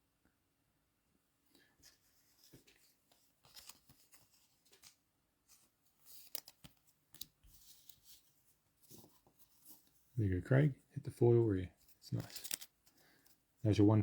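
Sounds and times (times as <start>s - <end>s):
cards rustling and clicking: 1.6s - 10.1s, 11.7s - 13.5s.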